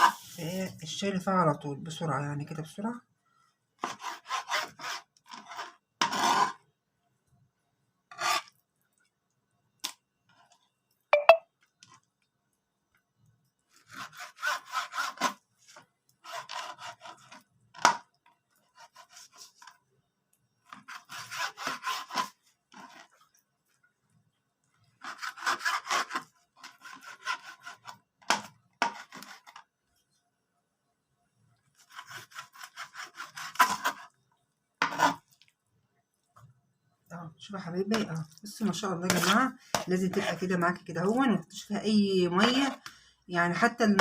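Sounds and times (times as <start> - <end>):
knife sawing through frozen meat: 3.8 - 6.6, 13.7 - 15.4, 16.2 - 17.4, 20.7 - 23.1, 25.0 - 28.0, 31.8 - 34.1.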